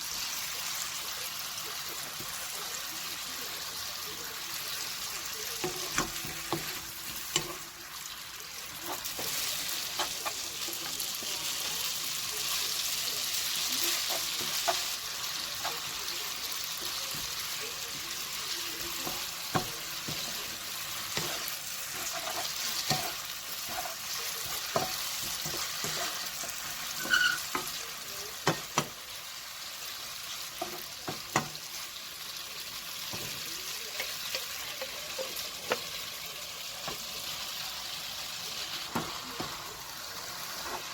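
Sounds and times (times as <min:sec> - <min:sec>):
food sizzling in a frying pan: 0:00.0 - 0:40.9
utensil clicking against pan: 0:30.6 - 0:31.6.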